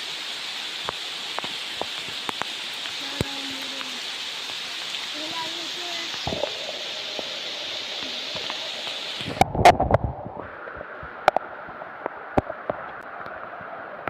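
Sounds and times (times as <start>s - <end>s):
sharp ticks and drips: 0.0s - 9.5s
rain hissing: 0.0s - 14.0s.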